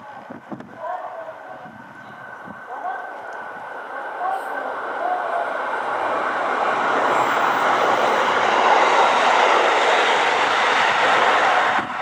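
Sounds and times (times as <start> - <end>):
electric train running on rails: 0.0 - 12.0.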